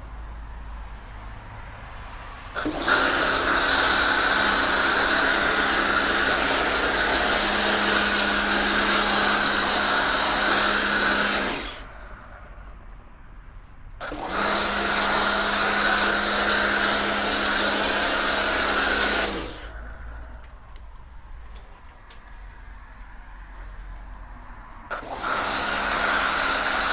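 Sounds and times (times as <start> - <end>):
water jet hissing: 2.6 - 11.9, 14.0 - 19.8, 24.9 - 26.9
pressure washer motor hum: 2.6 - 12.0, 14.0 - 20.0, 24.9 - 26.9.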